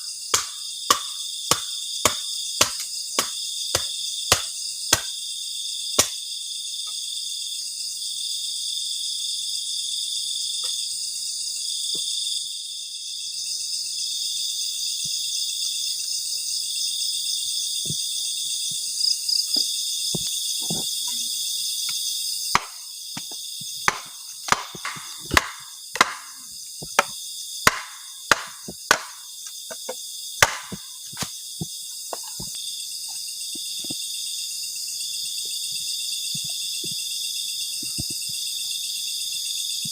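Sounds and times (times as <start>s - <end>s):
crickets and insects chirping: 0.0s - 39.9s
wood chopping knocks: 0.4s - 5.1s, 22.6s - 31.3s.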